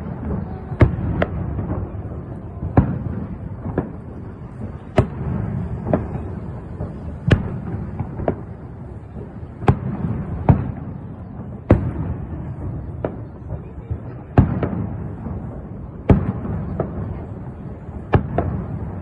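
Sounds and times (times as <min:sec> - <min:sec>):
fireworks bangs: 0:00.0 - 0:19.0.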